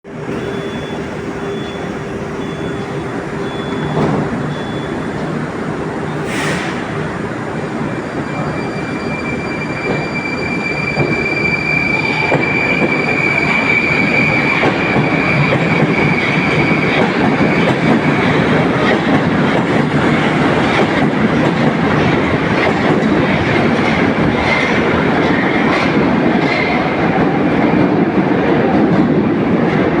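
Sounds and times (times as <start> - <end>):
high steady drive whine: 0.1 - 19.3
wheel and rail noise: 0.1 - 30.0.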